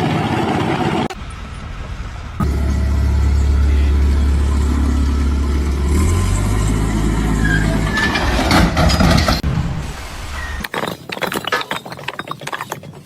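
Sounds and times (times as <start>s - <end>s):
machine engine humming: 0.0s - 8.0s
metallic clattering: 10.6s - 13.0s.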